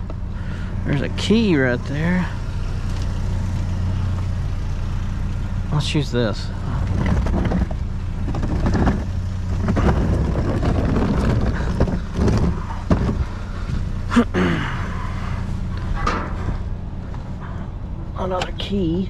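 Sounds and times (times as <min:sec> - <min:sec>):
vehicle engine idling: 0:00.0 - 0:19.0
junk clattering in a dumpster: 0:06.7 - 0:13.8, 0:15.8 - 0:16.7.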